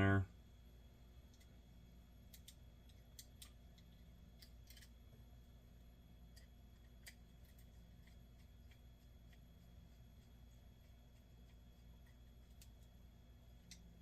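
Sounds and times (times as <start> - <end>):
low steady hum: 0.0 - 14.0
screwdriver and metal parts clicking: 2.3 - 5.0.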